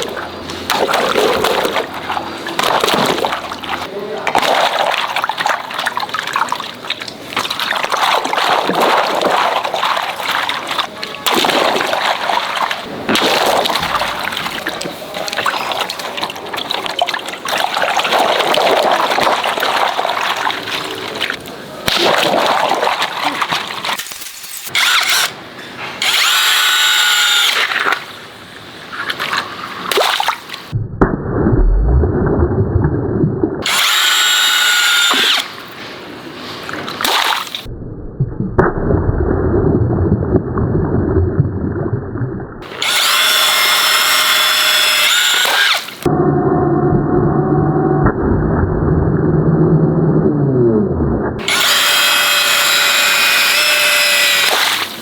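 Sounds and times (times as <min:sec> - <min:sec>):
water gushing and splashing: 0:00.0 - 0:24.2, 0:38.7 - 0:46.1, 0:51.4 - 0:55.0.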